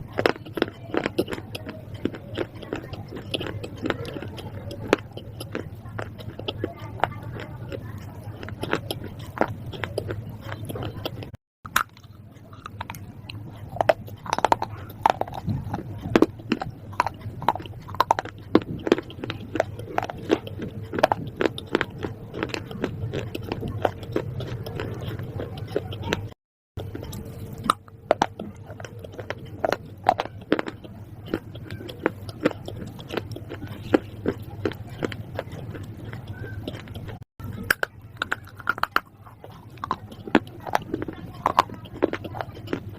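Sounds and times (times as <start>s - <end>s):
crunchy chewing: 0.0s - 42.9s.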